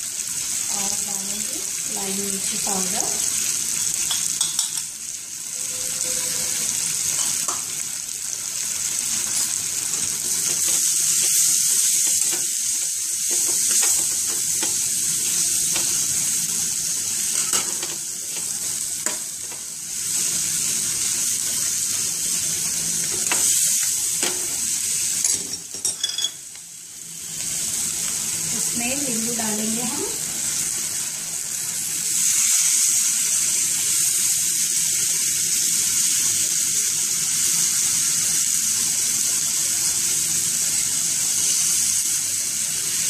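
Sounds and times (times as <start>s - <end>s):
vegetables sizzling in oil: 0.0s - 43.0s
spoon scraping a pan: 5.5s - 7.8s, 9.1s - 16.3s, 17.3s - 20.3s.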